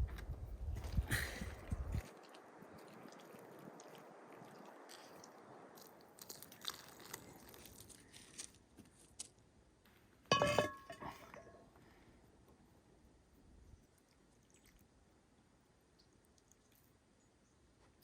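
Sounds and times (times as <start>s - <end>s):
cookware clicks and taps: 10.3s - 11.5s
metal clank with ringing tone: 10.3s - 11.5s.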